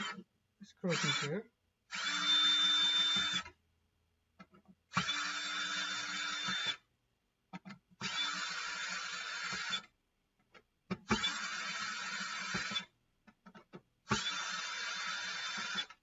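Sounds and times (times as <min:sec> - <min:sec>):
cordless drill whining: 0:00.0 - 0:03.6, 0:04.9 - 0:06.9, 0:08.0 - 0:09.9, 0:11.0 - 0:13.0, 0:14.1 - 0:16.0.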